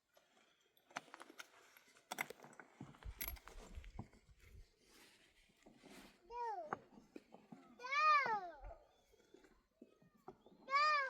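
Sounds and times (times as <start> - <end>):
light clicks and rattles: 0.8 - 4.2.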